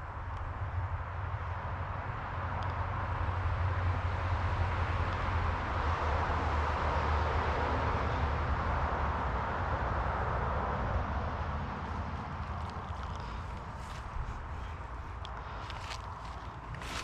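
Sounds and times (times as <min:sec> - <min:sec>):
wind rumble on microphone: 0:00.0 - 0:17.0
creek water rushing: 0:11.4 - 0:17.0.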